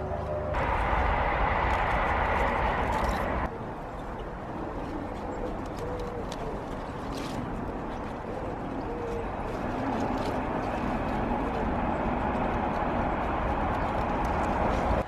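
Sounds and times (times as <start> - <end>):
rushing noise: 0.5 - 3.5
bird cooing softly: 4.8 - 10.4.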